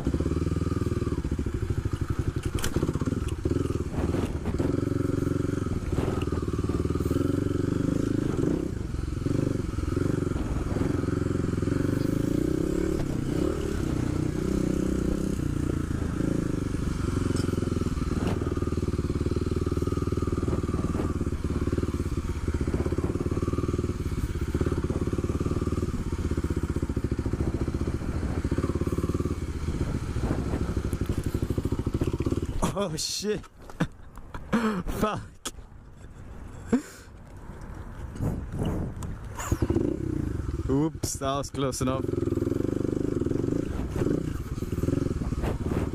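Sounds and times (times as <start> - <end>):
motorcycle engine running: 0.0 - 34.2, 37.6 - 45.9.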